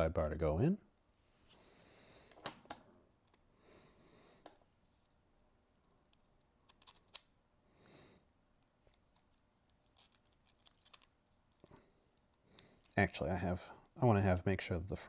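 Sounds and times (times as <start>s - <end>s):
plastic discs clicking: 8.9s - 13.0s.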